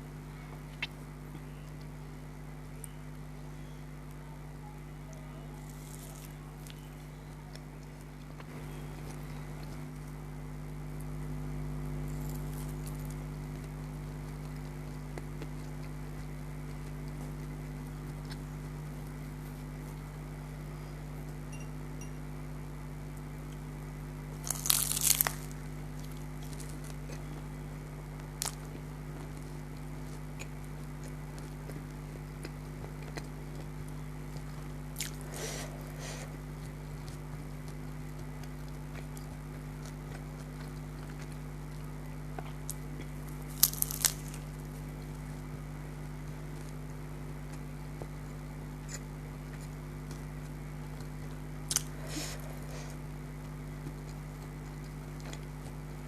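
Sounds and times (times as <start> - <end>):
steady low hum: 0.0 - 56.0
crunching crispy food: 5.1 - 20.6, 23.1 - 56.0.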